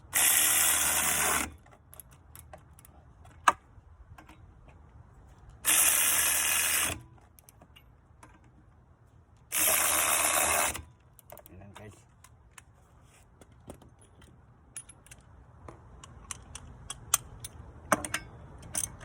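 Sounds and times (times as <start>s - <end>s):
power tool bursts: 5.6s - 7.0s, 9.5s - 10.8s.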